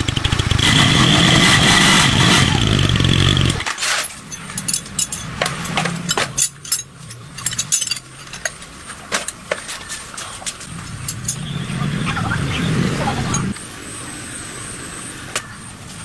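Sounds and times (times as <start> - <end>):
loud engine running: 0.0 - 16.0
hand tools clinking on metal: 3.6 - 11.8.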